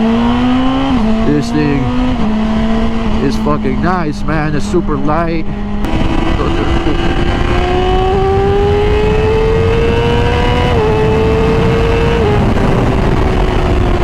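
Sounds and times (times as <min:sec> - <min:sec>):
sport bike accelerating: 0:00.0 - 0:14.0
wind noise over microphone: 0:05.4 - 0:14.0.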